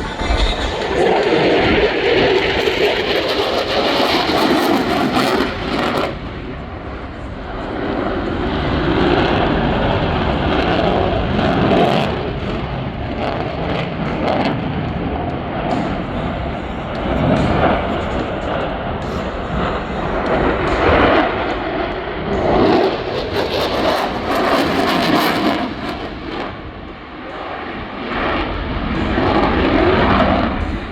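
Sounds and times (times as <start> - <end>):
plane flying overhead: 0.0 - 30.9.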